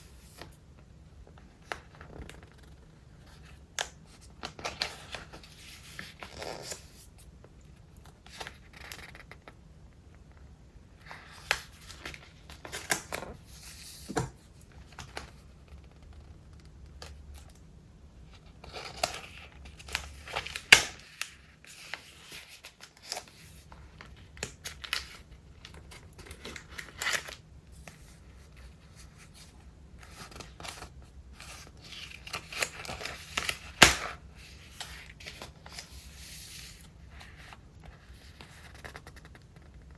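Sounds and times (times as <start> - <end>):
crisp paper snaps: 18.7 - 21.4, 31.9 - 34.2.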